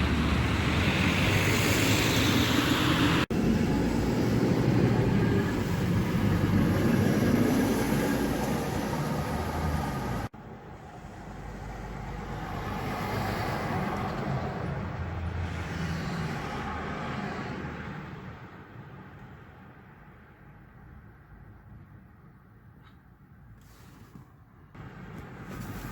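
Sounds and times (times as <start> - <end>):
heavy trucks driving past: 0.0 - 18.4.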